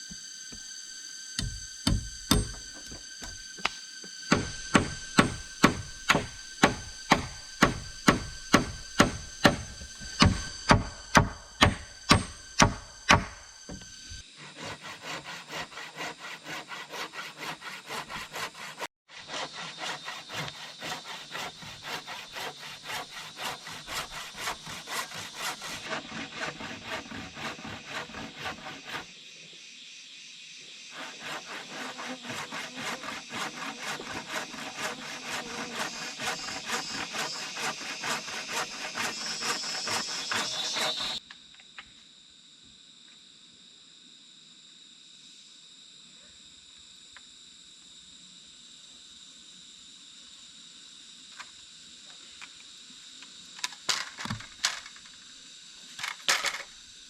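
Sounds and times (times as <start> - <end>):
chopping knocks: 1.4 - 14.1
hand saw cutting bamboo: 1.4 - 29.1, 30.9 - 41.2.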